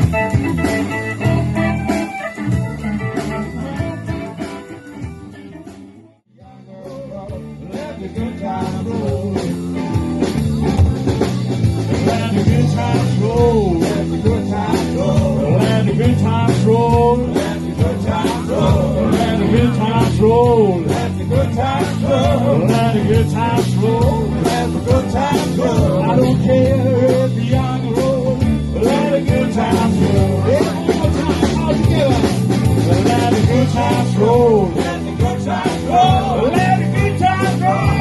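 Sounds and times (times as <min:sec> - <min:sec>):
lead guitar bending notes: 0:00.0 - 0:05.6
live blues-rock band playing: 0:00.0 - 0:38.0.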